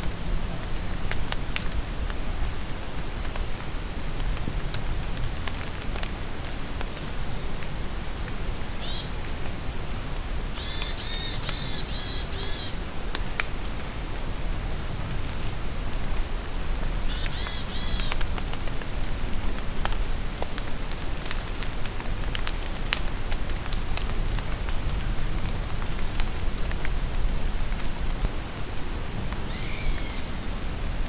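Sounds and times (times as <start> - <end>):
steady rain with drips: 0.0 - 31.0
songbird chirping: 29.5 - 30.5.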